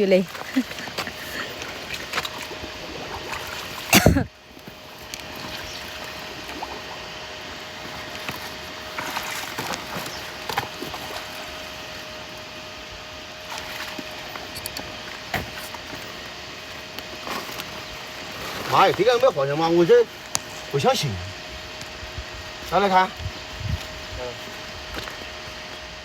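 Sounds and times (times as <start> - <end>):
water sloshing and trickling: 0.0 - 20.8
faint steady hum: 0.0 - 26.0.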